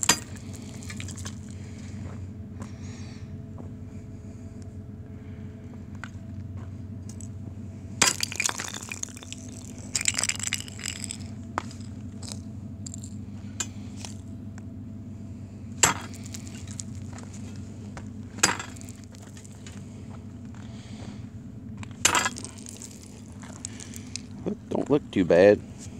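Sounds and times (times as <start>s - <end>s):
ice crunching and breaking: 0.0s - 1.6s, 8.0s - 13.2s, 15.8s - 17.6s, 18.3s - 19.8s, 21.9s - 24.4s.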